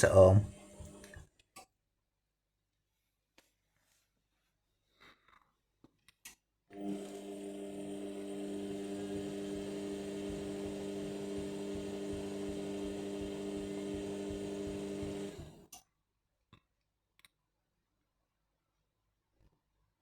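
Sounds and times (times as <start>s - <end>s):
washing machine humming and rushing: 0.0s - 1.2s, 6.7s - 15.7s.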